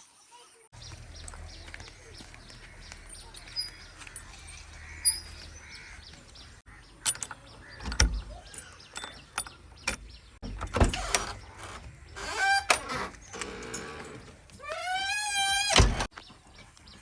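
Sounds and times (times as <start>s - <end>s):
low engine hum: 0.8s - 6.6s
metallic clanks and knocks: 0.8s - 15.0s.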